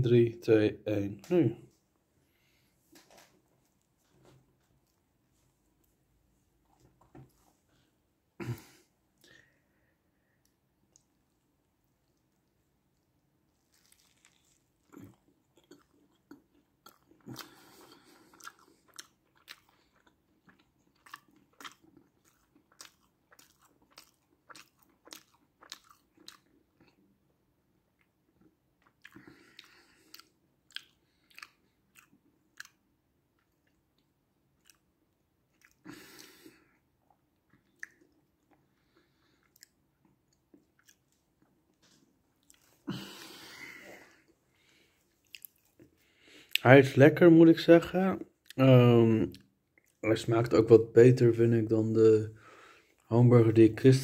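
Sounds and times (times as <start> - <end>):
person chewing with wet smacks: 10.4 - 44.4, 45.1 - 46.6, 49.3 - 50.0.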